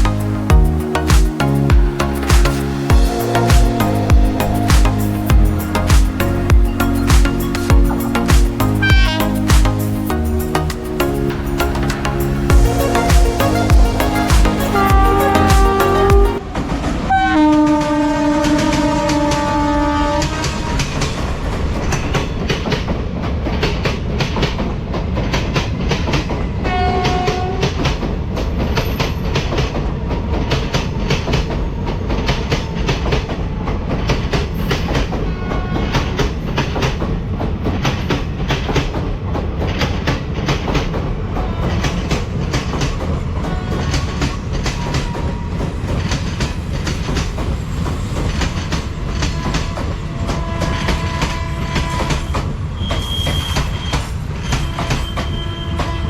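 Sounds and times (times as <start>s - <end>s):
train horn note: 8.8s - 9.4s, 12.8s - 21.0s, 26.7s - 27.7s, 49.4s - 52.4s, 54.7s - 56.0s
train wheels clattering over rails: 17.7s - 56.0s.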